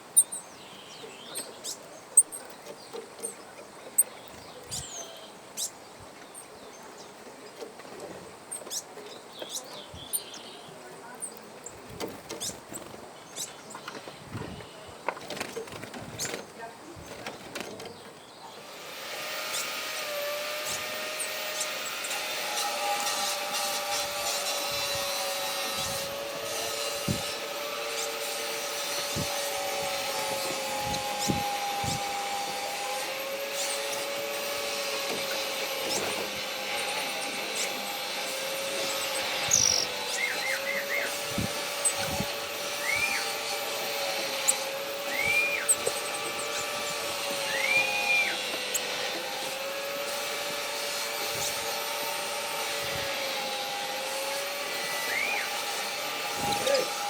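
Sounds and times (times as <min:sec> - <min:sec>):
bird chirping: 0:00.0 - 0:07.7, 0:08.5 - 0:15.0, 0:17.8 - 0:24.0, 0:33.4 - 0:49.4
mechanical hum: 0:18.4 - 0:57.0.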